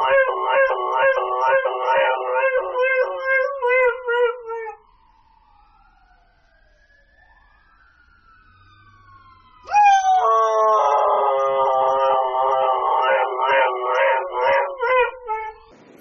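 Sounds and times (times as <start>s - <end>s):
dog yowling: 0.0s - 4.8s, 9.7s - 15.6s.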